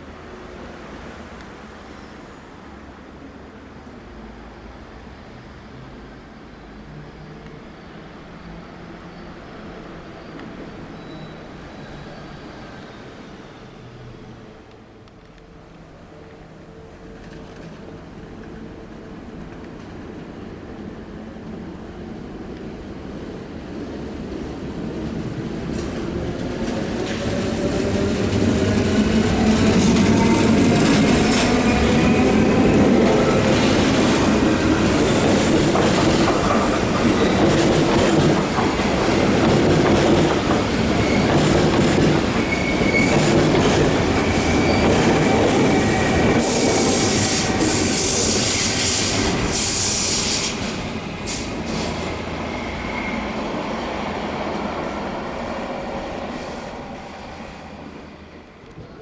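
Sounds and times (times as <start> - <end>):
high wheel squeal: 9.0 - 13.9, 40.9 - 41.3, 42.3 - 43.3, 44.2 - 50.6, 51.2 - 53.7
train rumbling and clattering: 14.3 - 59.0.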